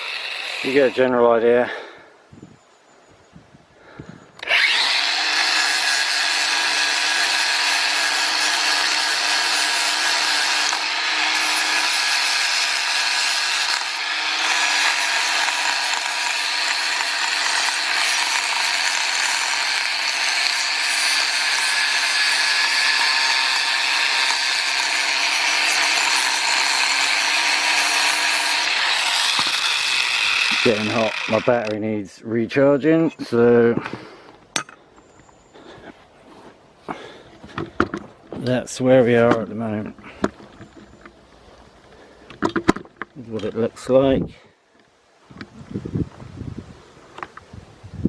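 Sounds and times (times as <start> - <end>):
power tool whining and grinding: 0.0 - 1.2, 3.8 - 31.8.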